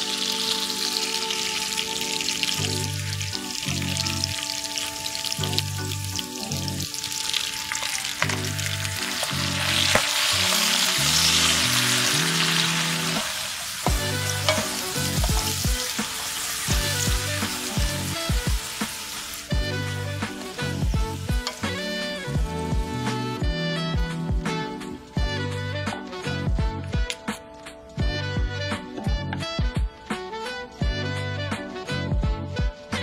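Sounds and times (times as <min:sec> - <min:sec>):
wooden spoons stirring in pan: 0:00.0 - 0:23.0
spinach sizzling in butter: 0:00.0 - 0:25.2
background music with bass: 0:00.0 - 0:33.0.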